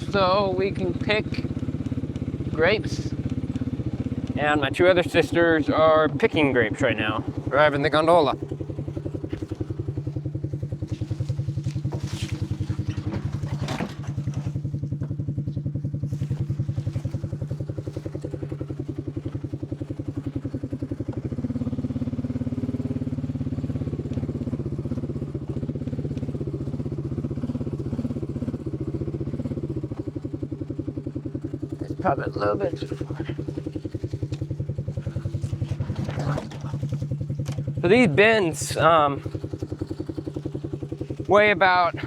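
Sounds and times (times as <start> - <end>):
farm vehicle engine running: 0.0 - 42.0
knocks and clatters: 10.8 - 15.5, 32.9 - 37.8.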